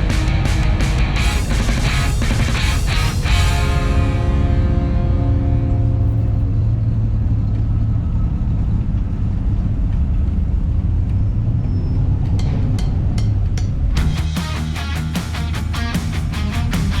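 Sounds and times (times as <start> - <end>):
car engine rumbling: 0.0 - 11.6.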